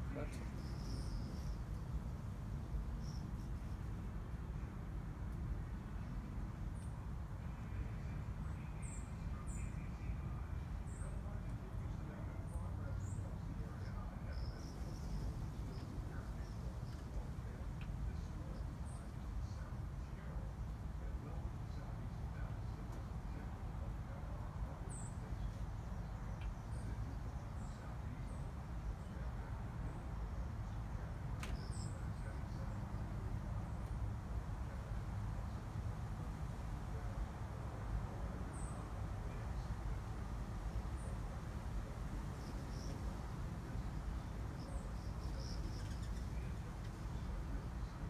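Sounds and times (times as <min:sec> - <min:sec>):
small bird chirping: 0:00.3 - 0:02.0, 0:31.5 - 0:32.7, 0:44.5 - 0:47.3.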